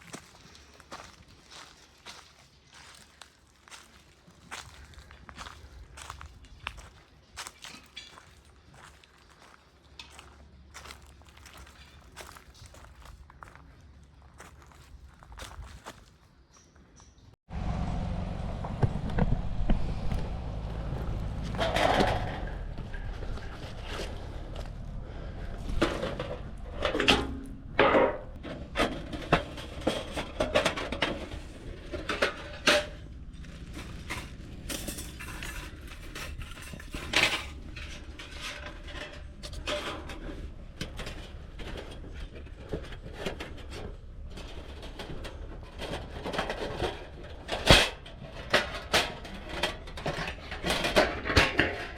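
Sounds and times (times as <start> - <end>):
metal camping gear clinking: 33.7 - 40.4.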